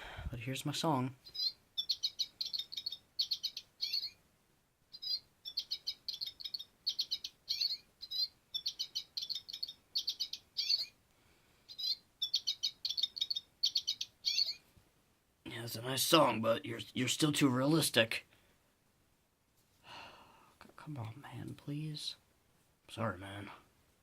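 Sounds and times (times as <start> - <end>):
bird song with quick high chirps: 1.3 - 4.2, 5.0 - 10.9, 11.7 - 14.6.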